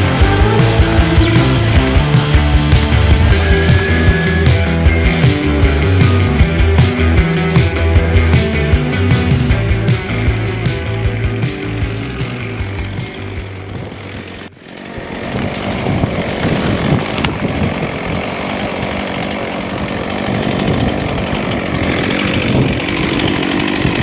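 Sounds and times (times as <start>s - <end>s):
music: 0.0s - 14.0s
chainsaw cutting wood: 0.0s - 24.0s.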